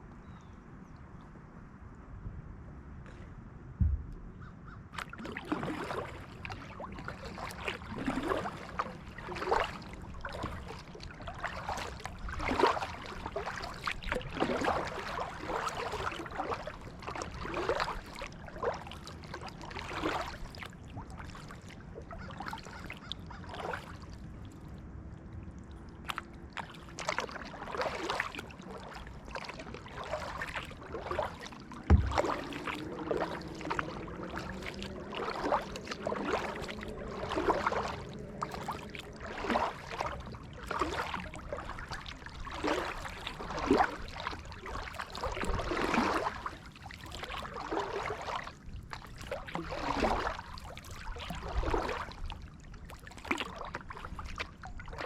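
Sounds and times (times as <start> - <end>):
low knock: 3.8 - 4.2, 31.9 - 32.4
paddle splashing into water: 5.0 - 24.1, 26.1 - 55.0
water dripping: 31.8 - 39.7.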